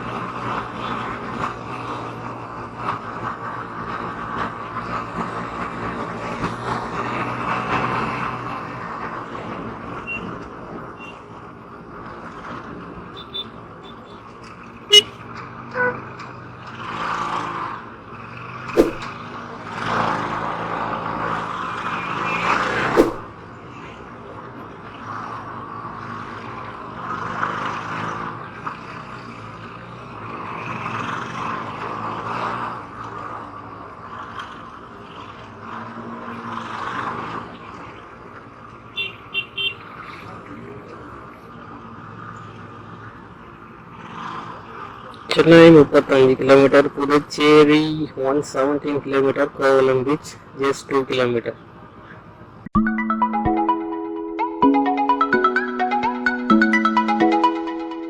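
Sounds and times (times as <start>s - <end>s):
passing vehicles: 0.0s - 58.0s
short sharp sounds: 18.8s - 19.1s, 22.9s - 23.3s
wind rushing: 18.8s - 19.1s, 22.9s - 23.3s.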